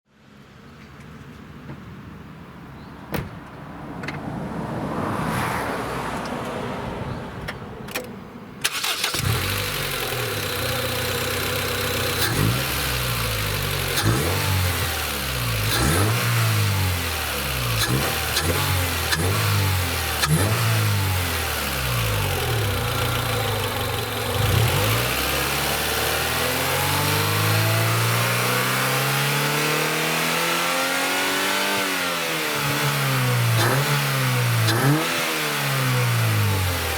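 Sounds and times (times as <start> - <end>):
car engine revving: 8.6 - 36.9.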